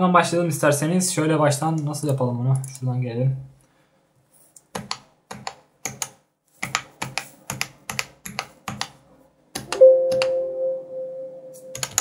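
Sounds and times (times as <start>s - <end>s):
steady tone: 9.8s - 12.0s
mechanical keyboard key clicks: 11.7s - 12.0s.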